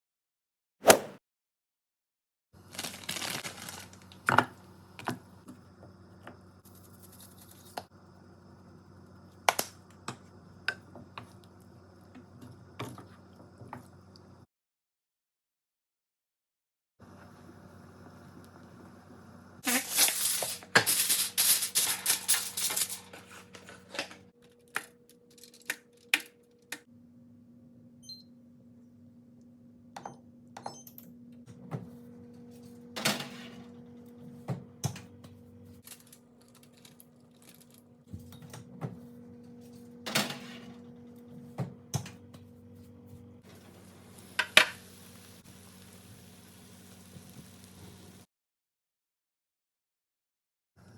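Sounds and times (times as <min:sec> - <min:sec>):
kitchen items rattling: 0:02.7 - 0:04.6, 0:19.7 - 0:26.8.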